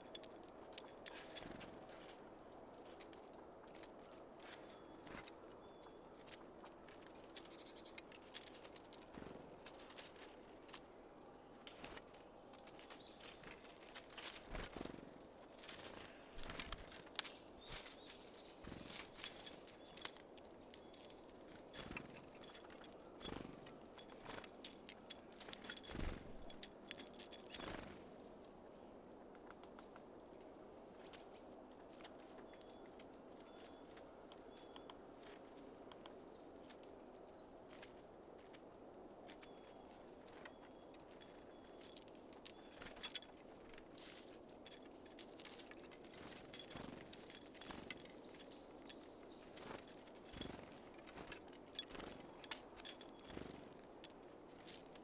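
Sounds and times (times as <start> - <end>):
birds tapping at a feeder: 11.6 - 28.2, 39.3 - 55.0.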